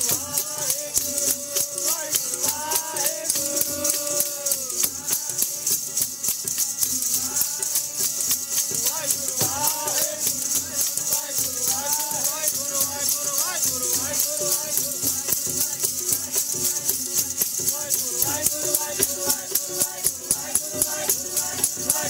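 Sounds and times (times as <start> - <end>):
person singing devotional melody: 0.0 - 22.0
rattling percussion beat: 0.0 - 22.0.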